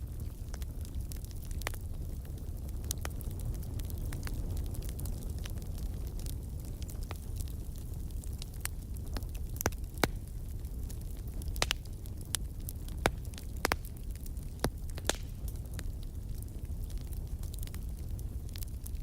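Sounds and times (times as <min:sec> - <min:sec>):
wood fire crackling: 0:00.0 - 0:19.0
sharp pops of burning wood: 0:00.1 - 0:19.0.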